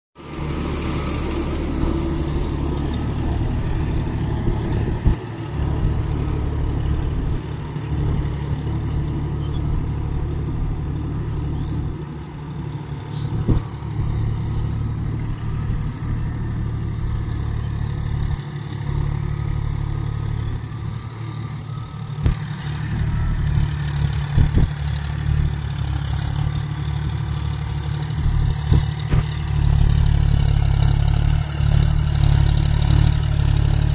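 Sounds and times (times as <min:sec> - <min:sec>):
tractor diesel engine running: 0:00.2 - 0:33.9
sharp engine knocks: 0:13.3 - 0:14.6, 0:23.5 - 0:24.9, 0:28.2 - 0:30.9.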